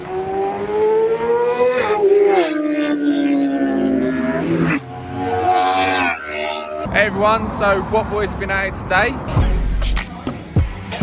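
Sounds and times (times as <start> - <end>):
motorcycle engine revving: 0.0 - 6.9.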